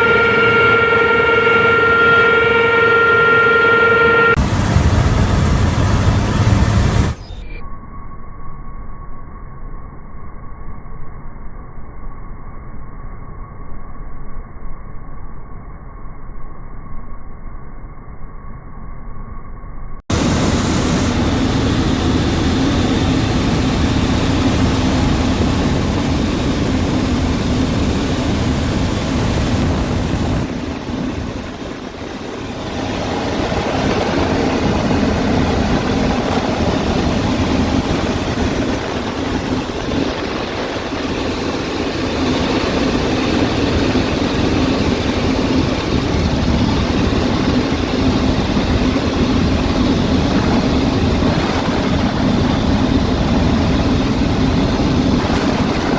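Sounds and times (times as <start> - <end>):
helicopter rotor and engine: 0.0 - 7.5, 20.1 - 55.9.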